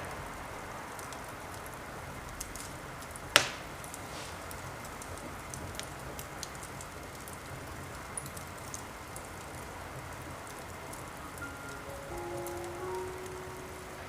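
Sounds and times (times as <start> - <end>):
steady rain: 0.0 - 14.0
small clicks and drips: 0.9 - 12.6
soft sustained music notes: 11.0 - 14.0.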